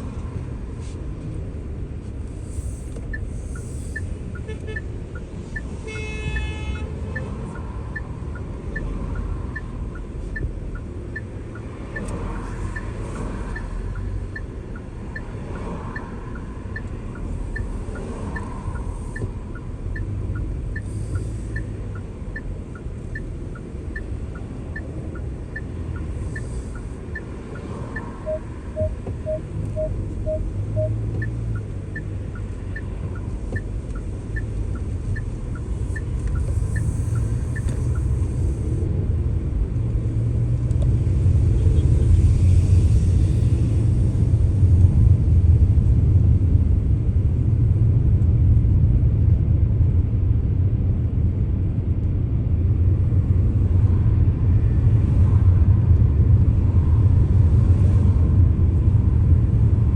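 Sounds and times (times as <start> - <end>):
car engine and road rumble: 0.0 - 59.9
high two-tone beeps: 15.9 - 33.7.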